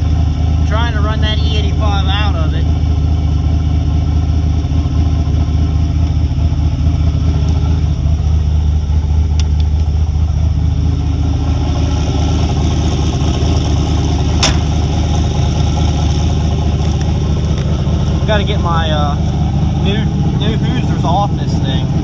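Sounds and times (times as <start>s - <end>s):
car engine idling: 0.0s - 22.0s
sharp click: 14.4s - 14.7s.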